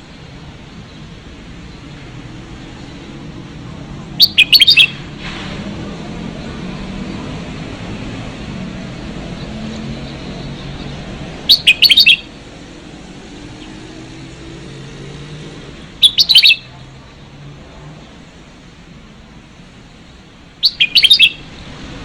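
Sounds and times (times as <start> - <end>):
bird singing loud quick notes: 4.2 - 5.0, 11.4 - 12.3, 16.0 - 16.7, 20.6 - 21.7.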